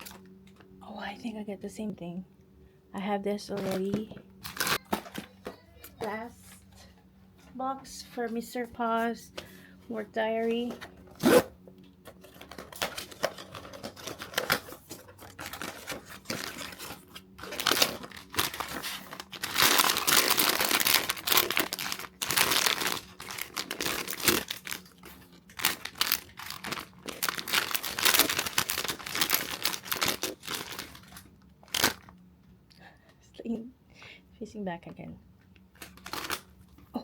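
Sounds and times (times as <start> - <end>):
wrapping crinkling and tearing: 0.0 - 0.2, 4.4 - 5.2, 12.2 - 32.1, 35.7 - 37.0.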